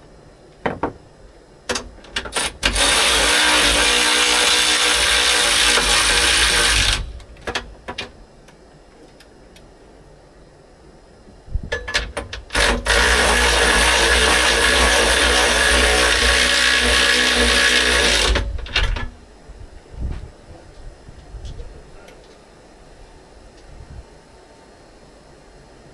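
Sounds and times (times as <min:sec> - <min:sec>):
power tool running nuts down: 0:02.3 - 0:07.3, 0:12.5 - 0:18.8.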